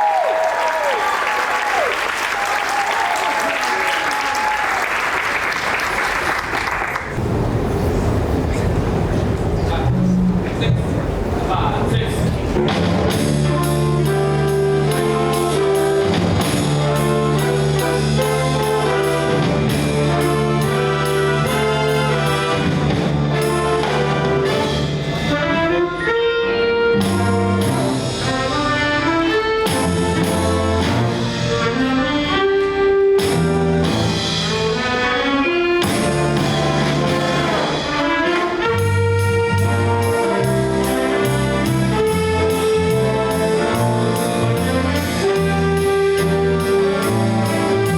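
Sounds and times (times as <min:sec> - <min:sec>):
jazz ensemble playing brass: 0:11.9 - 0:47.9.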